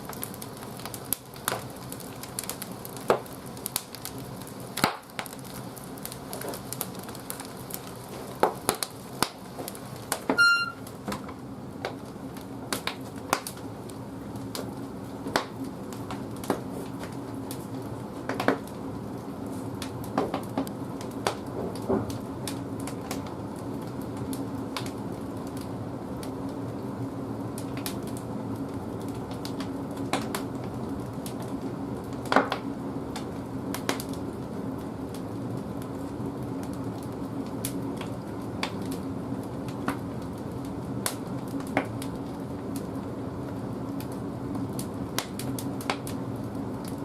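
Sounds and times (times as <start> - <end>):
firewood crackling and popping: 0.0 - 47.0
brief high squeak: 10.3 - 10.8.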